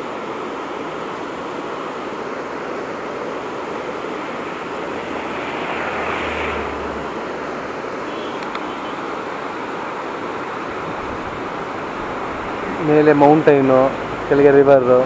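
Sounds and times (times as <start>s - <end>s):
river water rushing: 0.0s - 15.0s
low hum: 4.4s - 7.9s.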